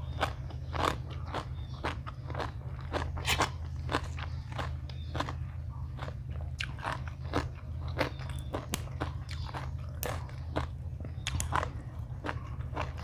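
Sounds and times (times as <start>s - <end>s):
person chewing crunchy food: 0.0s - 13.0s
steady low hum: 0.0s - 13.0s.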